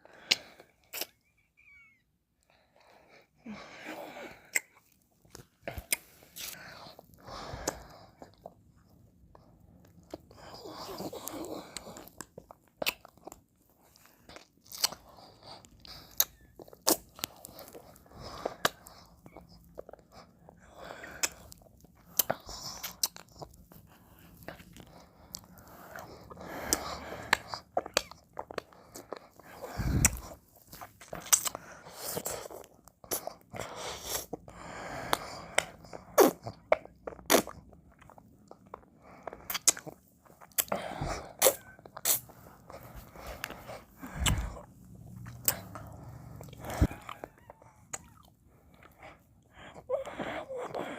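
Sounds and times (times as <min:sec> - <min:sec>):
lip smacks and clicks: 0:00.2 - 0:01.3, 0:04.4 - 0:06.6, 0:11.2 - 0:13.4, 0:21.2 - 0:23.5, 0:24.4 - 0:33.3, 0:35.1 - 0:40.8, 0:41.4 - 0:47.3, 0:47.9 - 0:49.0
wet licking and chewing: 0:00.2 - 0:01.3, 0:04.4 - 0:50.9
breathy slurping: 0:23.9 - 0:30.4, 0:38.9 - 0:50.9.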